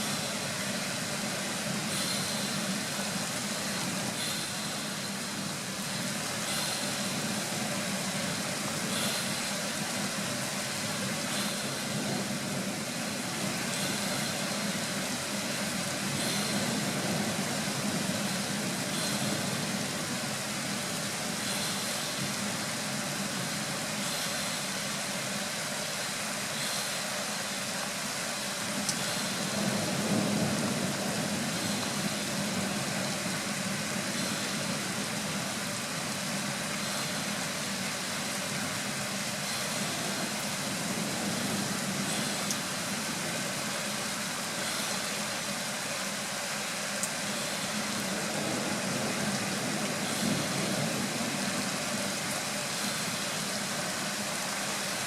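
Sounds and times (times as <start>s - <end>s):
rain hissing: 0.0s - 55.0s
distant thunder rumble: 6.0s - 22.4s, 29.0s - 37.9s, 47.3s - 53.8s.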